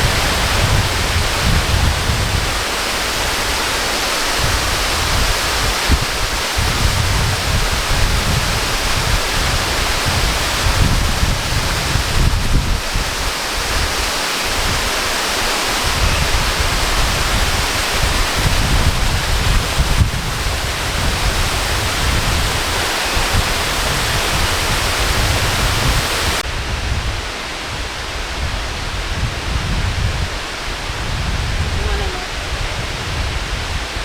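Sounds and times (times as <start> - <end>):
waterfall rushing: 0.0 - 26.5, 27.2 - 34.0
wind buffeting microphone: 0.0 - 34.0.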